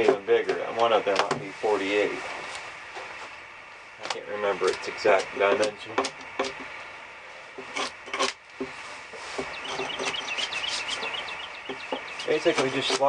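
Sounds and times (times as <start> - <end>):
hatchet scraping bark: 7.5 - 13.0.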